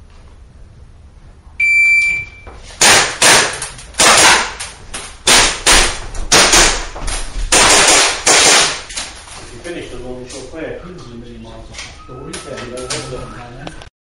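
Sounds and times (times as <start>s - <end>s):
shot timer beep: 1.6s - 2.5s
pistol shots: 2.8s - 4.6s, 5.2s - 6.9s, 7.5s - 8.9s.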